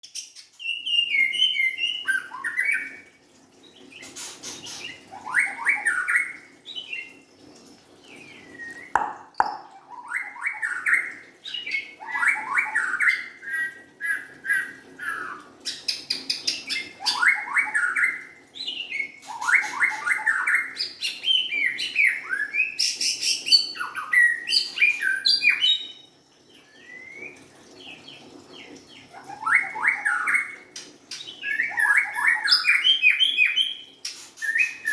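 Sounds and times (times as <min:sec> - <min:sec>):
bird singing whistled phrases: 0:31.4 - 0:34.9.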